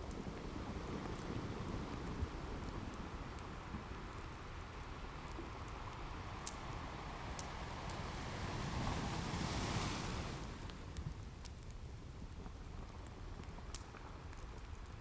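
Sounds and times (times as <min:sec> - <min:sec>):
wood fire crackling: 0:00.0 - 0:15.0
ocean waves washing on shore: 0:04.9 - 0:11.1.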